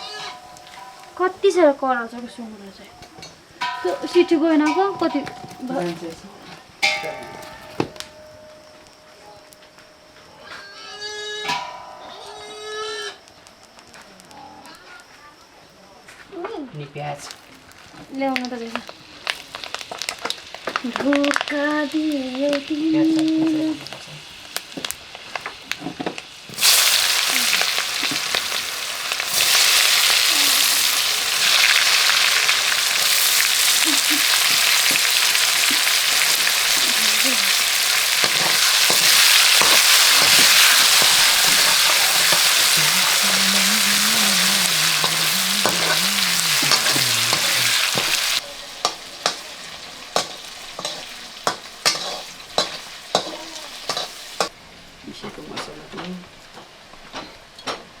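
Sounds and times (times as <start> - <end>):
food sizzling in hot oil: 0.0 - 2.6, 17.0 - 54.6
stirring knocks in a pan: 38.2 - 43.0.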